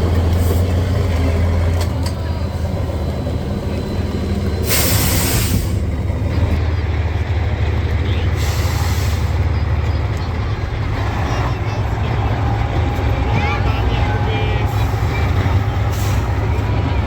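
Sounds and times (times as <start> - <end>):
heavy truck engine droning: 0.0 - 17.0
air-brake hiss: 4.6 - 5.9, 8.4 - 9.5, 14.7 - 16.4.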